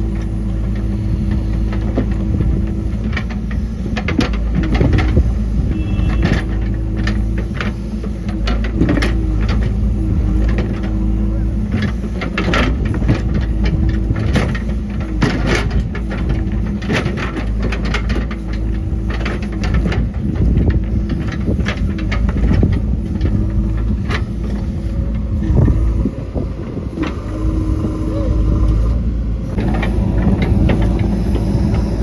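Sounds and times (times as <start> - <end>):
diesel engine under load: 0.0 - 32.0
sharp knocks and clatter: 11.7 - 24.7.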